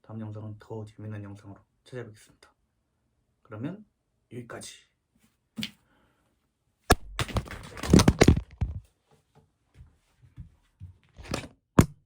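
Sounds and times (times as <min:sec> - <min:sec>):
loud rustling and knocking: 0:07.0 - 0:08.9.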